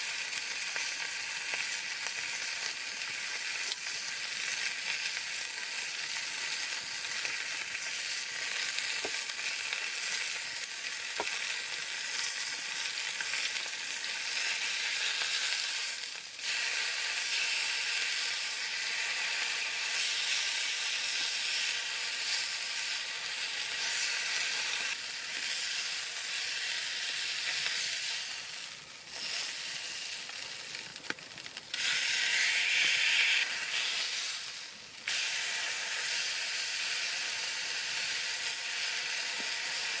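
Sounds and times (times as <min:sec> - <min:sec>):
sizzling hiss: 0:00.0 - 0:40.0
faint crackles: 0:28.5 - 0:32.1.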